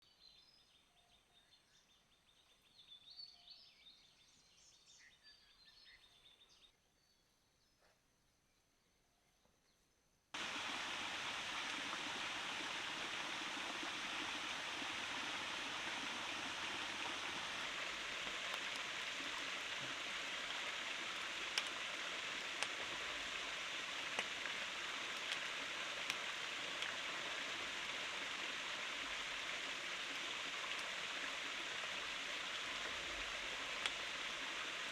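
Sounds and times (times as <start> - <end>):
drip-like ticks: 10.4 - 34.9
flowing water rushing: 10.4 - 34.9.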